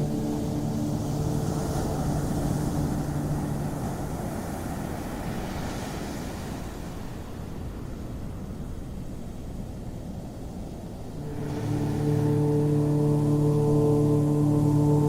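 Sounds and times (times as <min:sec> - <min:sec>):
ambient music low notes: 0:00.0 - 0:05.3, 0:11.2 - 0:15.0
ocean surf on beach: 0:00.0 - 0:15.0.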